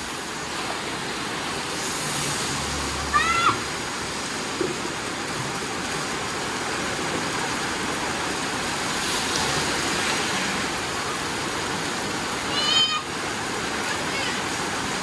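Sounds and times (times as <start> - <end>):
heavy rain splashing: 0.0 - 15.0
child squealing: 3.1 - 3.6, 12.5 - 13.1.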